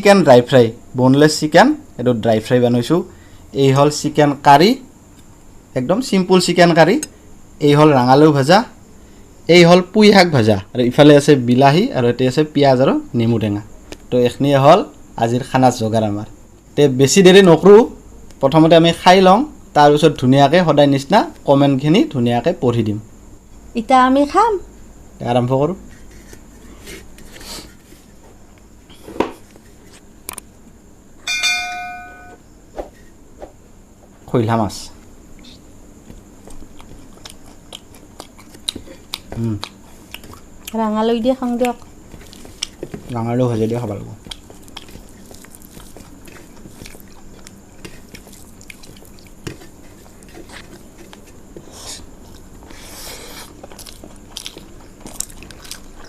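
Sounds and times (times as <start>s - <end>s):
metal dish struck and ringing: 31.3s - 32.4s
quiet eating sounds: 35.0s - 56.0s
person chewing and crunching food: 36.0s - 40.8s, 41.6s - 56.0s.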